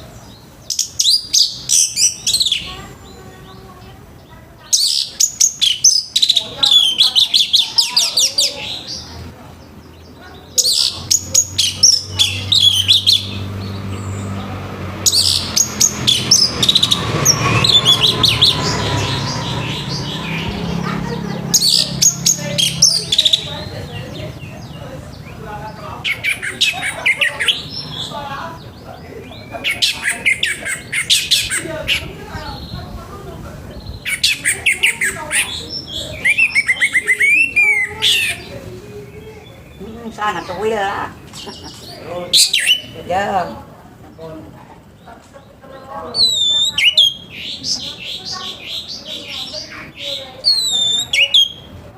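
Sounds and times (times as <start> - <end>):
thrush singing: 0.0 - 43.8
thrush singing whistled notes: 15.0 - 24.4, 46.1 - 51.9.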